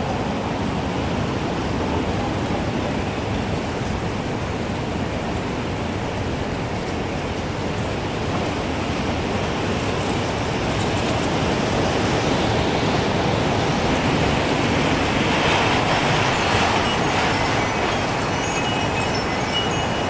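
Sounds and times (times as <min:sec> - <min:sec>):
gusting wind: 0:00.0 - 0:20.0
wind chime tinkling: 0:14.8 - 0:20.0.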